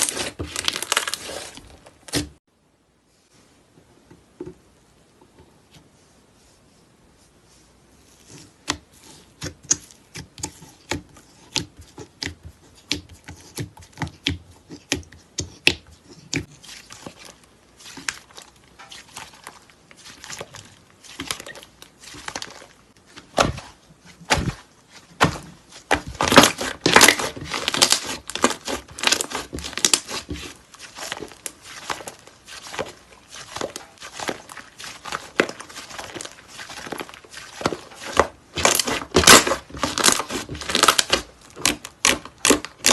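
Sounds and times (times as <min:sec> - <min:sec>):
slime popping and crackling: 0:00.0 - 0:02.3, 0:25.2 - 0:42.9.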